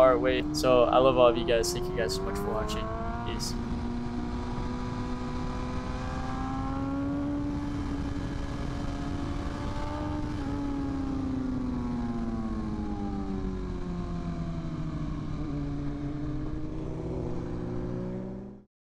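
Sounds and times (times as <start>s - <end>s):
constant rushing noise: 0.0s - 16.9s.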